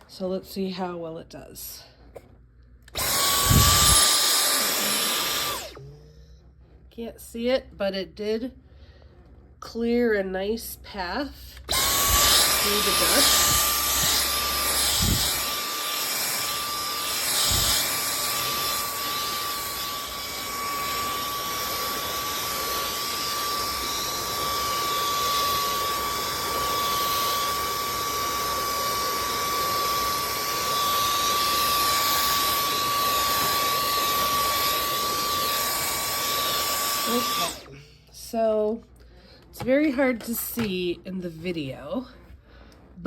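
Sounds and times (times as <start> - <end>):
vacuum cleaner whine: 2.9 - 6.1, 11.6 - 38.8.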